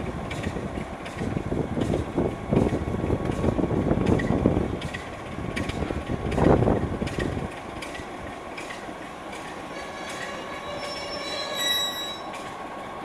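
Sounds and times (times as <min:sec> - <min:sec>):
wind buffeting microphone: 0:00.0 - 0:08.4
train rumbling on track: 0:00.0 - 0:13.0.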